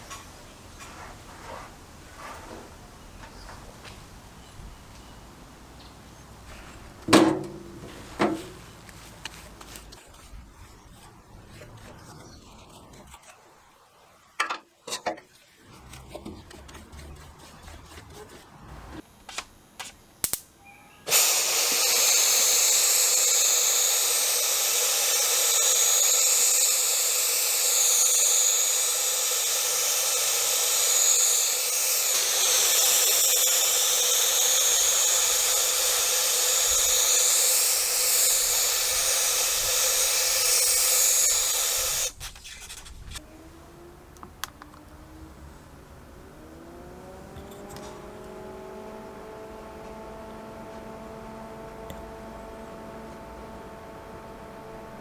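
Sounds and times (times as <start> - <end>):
handling knocks and clicks: 7.0 - 10.0
power tool whooshing: 21.1 - 43.2.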